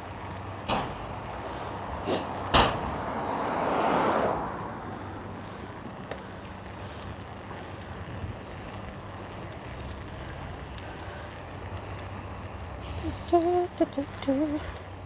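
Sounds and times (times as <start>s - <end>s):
wind buffeting microphone: 0.0s - 15.0s
faint clicks: 3.4s - 3.7s, 4.6s - 15.0s.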